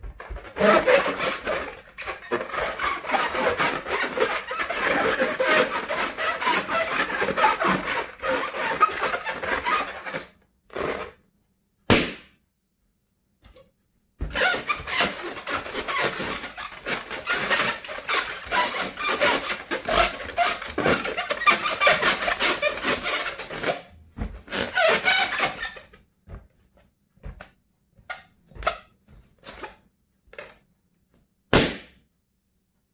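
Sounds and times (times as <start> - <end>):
rubber balloon squeaking: 0.0 - 12.2, 14.2 - 30.6
balloon snap: 11.9 - 12.4, 31.5 - 32.1.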